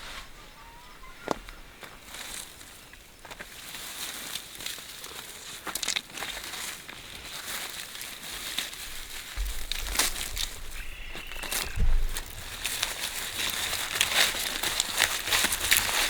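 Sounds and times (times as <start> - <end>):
faint steady high tone: 0.1 - 2.0
crinkling rustling handling: 1.2 - 16.0
small clicks and crackles: 3.3 - 16.0
low rumble: 9.4 - 14.0.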